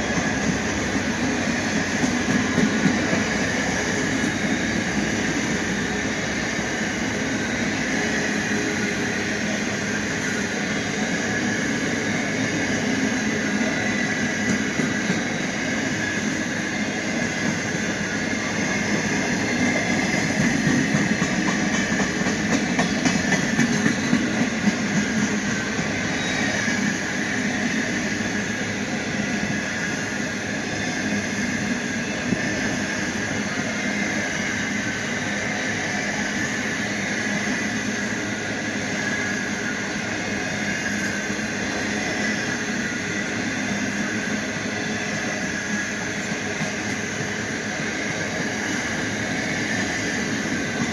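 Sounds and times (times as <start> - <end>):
freight train wheels rumbling on rail: 0.0 - 50.9
train wheel clicks: 1.7 - 5.0, 19.4 - 26.0.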